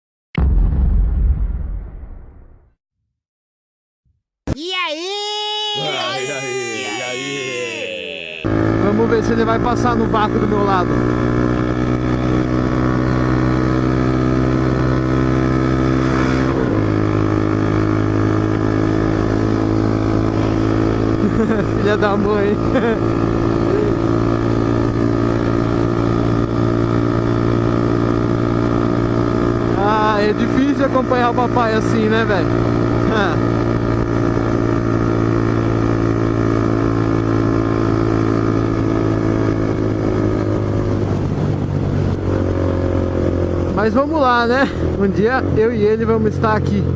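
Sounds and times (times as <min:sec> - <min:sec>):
motorcycle engine cruising: 0:08.4 - 0:45.6.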